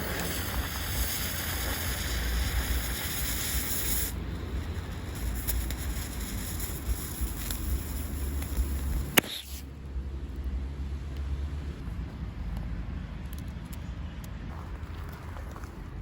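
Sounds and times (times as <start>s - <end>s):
bright hissing: 0.0s - 9.7s
constant low rumble: 0.0s - 16.0s.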